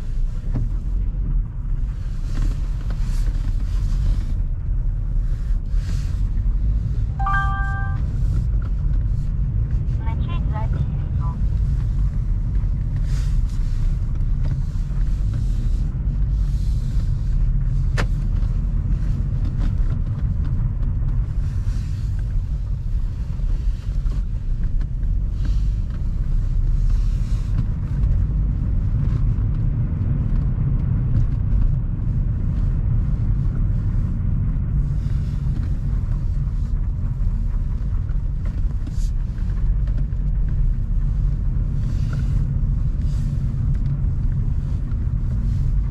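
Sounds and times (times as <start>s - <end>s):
car interior rumble: 0.0s - 45.9s.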